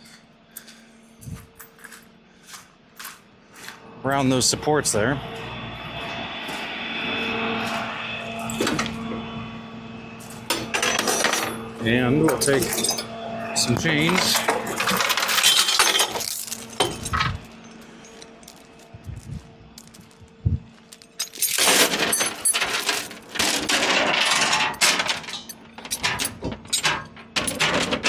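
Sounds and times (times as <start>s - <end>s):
steel chains clinking and rattling: 10.4s - 28.0s.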